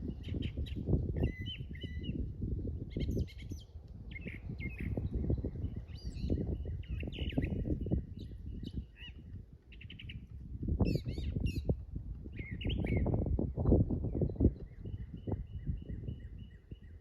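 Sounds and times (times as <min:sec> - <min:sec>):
small birds chirping: 0:00.0 - 0:02.2, 0:02.8 - 0:17.0.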